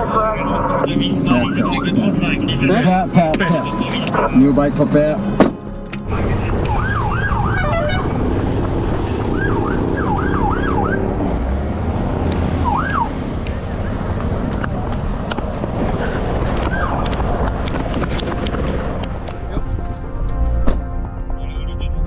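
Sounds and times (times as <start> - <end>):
road and engine noise: 0.0 - 22.0
siren yelps: 6.5 - 8.2, 9.2 - 11.1, 12.6 - 13.1.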